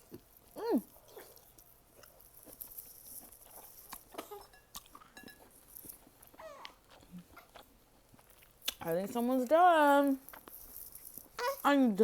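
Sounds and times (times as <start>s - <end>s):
baby sucking and mouth clicks: 8.6s - 8.9s.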